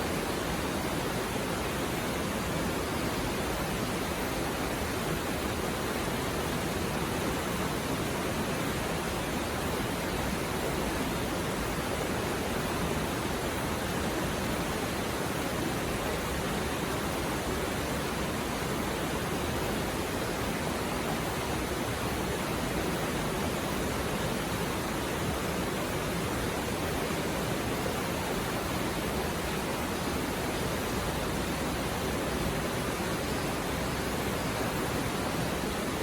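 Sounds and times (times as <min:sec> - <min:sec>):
stream flowing over rocks: 0:00.0 - 0:36.0.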